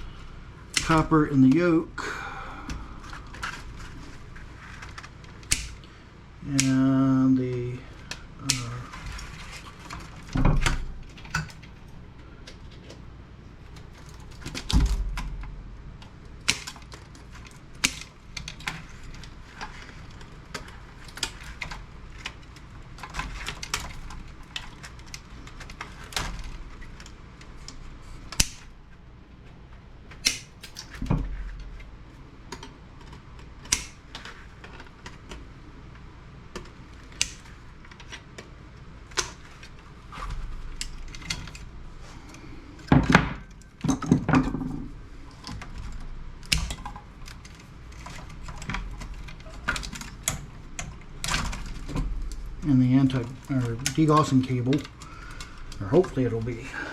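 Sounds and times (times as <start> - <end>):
tools and parts clicking: 32.5 - 35.4.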